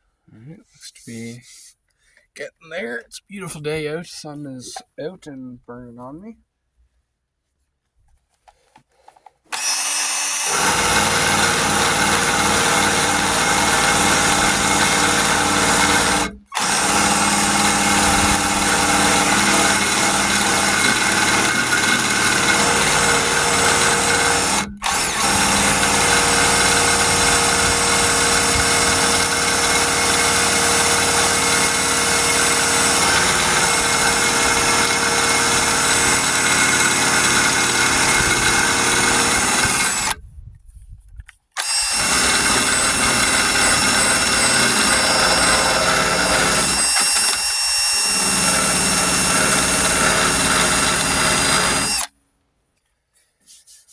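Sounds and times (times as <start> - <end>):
power burnishing tool whining: 9.5 - 40.2, 41.6 - 52.1.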